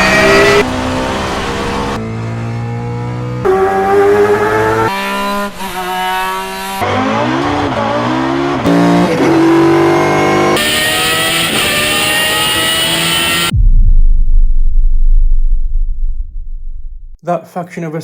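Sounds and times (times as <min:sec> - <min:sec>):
race car engines revving: 0:00.0 - 0:13.5.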